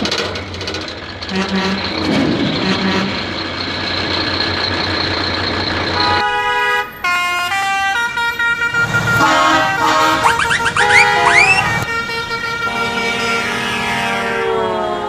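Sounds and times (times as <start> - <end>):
musical vehicle horn tune: 6.2 - 15.0.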